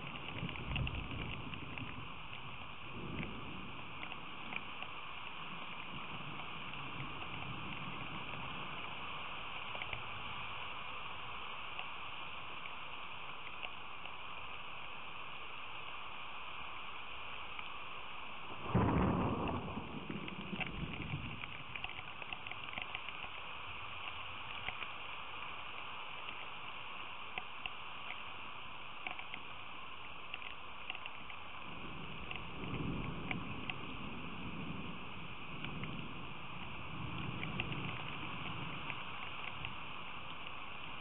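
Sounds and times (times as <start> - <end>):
thunder clap rumbling: 0.0 - 9.0, 18.5 - 23.0, 31.6 - 40.4
soft roll of thunder: 0.0 - 9.3, 18.4 - 23.8, 31.6 - 41.0
raindrops ticking on microphone: 0.0 - 41.0
steady rain: 0.0 - 41.0.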